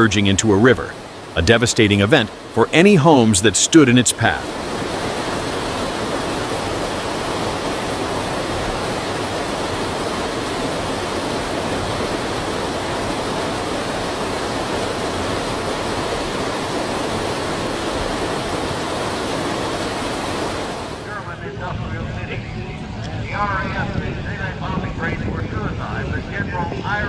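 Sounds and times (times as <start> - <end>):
mud flow rushing into river: 0.0 - 21.4.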